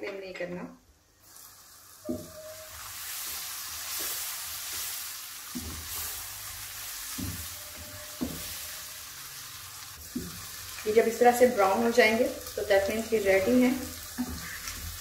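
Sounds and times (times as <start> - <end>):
mushrooms sizzling in a pan: 1.2 - 15.0
wooden spatula scraping a pan: 2.0 - 9.2, 13.5 - 15.0.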